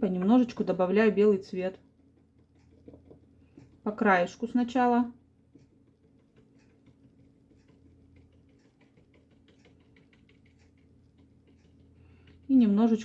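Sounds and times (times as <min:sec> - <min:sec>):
low steady hum: 0:00.0 - 0:13.0
paintbrush tapping on paper: 0:01.9 - 0:04.4, 0:05.4 - 0:13.0.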